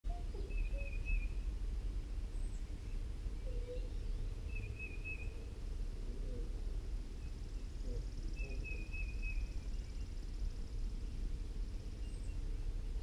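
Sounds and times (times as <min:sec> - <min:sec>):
high wavering bird calls: 0:00.1 - 0:01.6, 0:02.3 - 0:06.5, 0:07.2 - 0:10.2
low outdoor rumble: 0:00.1 - 0:13.0.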